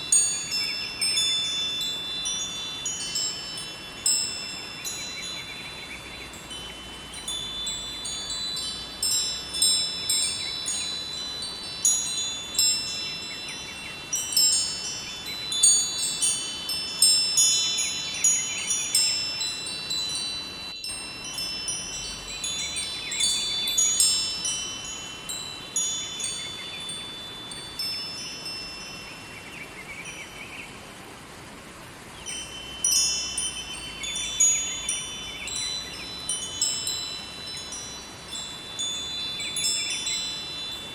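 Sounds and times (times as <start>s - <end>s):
wind chimes ringing: 0.0s - 30.6s, 31.5s - 40.9s
flowing river water: 0.0s - 40.9s.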